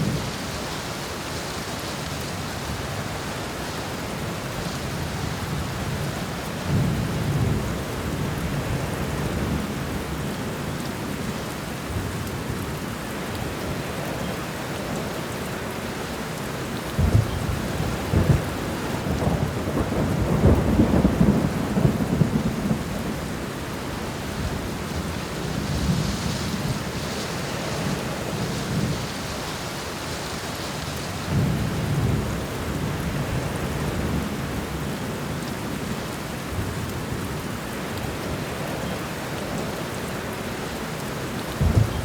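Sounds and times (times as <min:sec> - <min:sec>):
steady rain falling: 0:00.0 - 0:42.0
rolling thunder: 0:17.0 - 0:23.3, 0:41.5 - 0:42.0.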